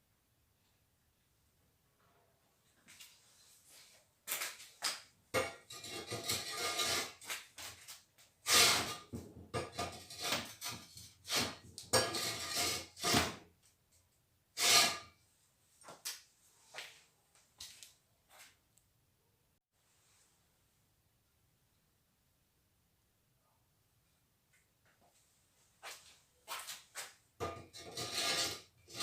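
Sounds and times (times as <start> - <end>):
hard parts scraping and clattering: 5.4 - 13.4, 27.4 - 29.0.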